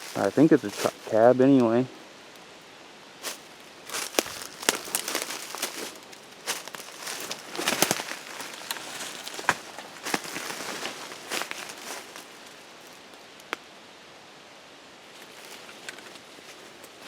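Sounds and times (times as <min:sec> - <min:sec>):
footsteps in dry leaves: 0:00.0 - 0:01.6, 0:03.2 - 0:13.1.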